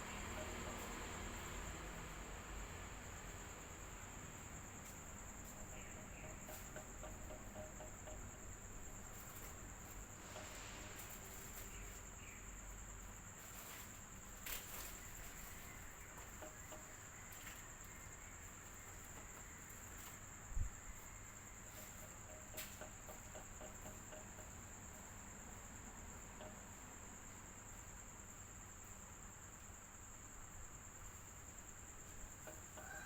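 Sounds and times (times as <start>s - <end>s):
electric fan humming: 0.0s - 13.4s.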